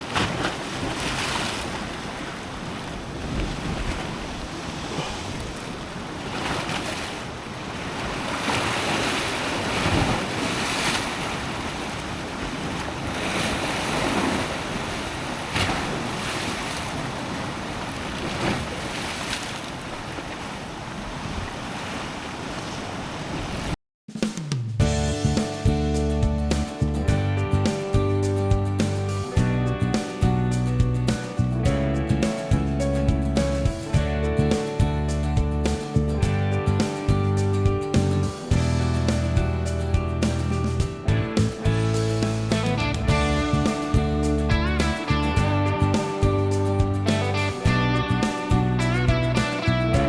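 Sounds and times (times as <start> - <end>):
waves breaking against rocks: 0.0 - 23.8.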